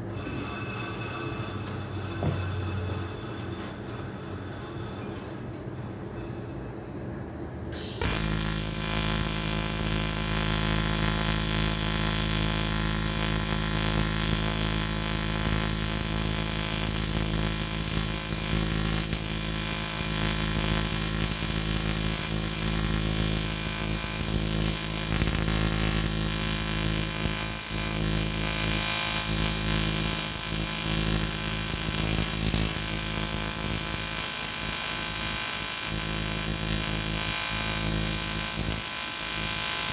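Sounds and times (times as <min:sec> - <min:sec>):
welding arc buzzing: 0:07.7 - 0:39.9.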